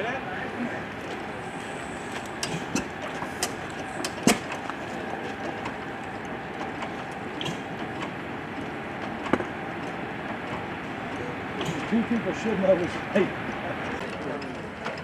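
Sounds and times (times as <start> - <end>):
stationary engines running: 0.0 - 15.0
engine pops: 2.1 - 12.4.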